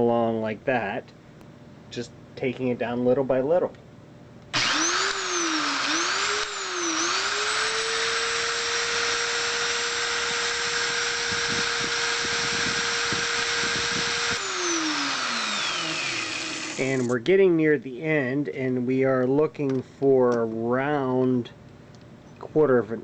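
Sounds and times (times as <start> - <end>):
electric drill motor whine: 4.5 - 17.1.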